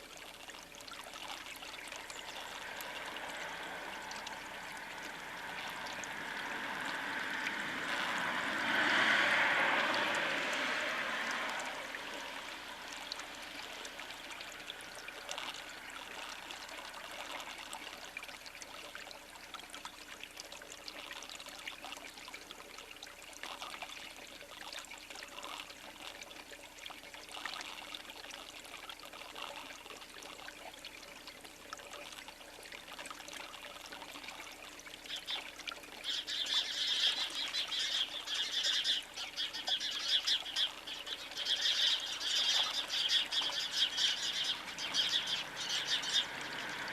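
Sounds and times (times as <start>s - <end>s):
birds chirping and chattering: 36.0s - 46.3s.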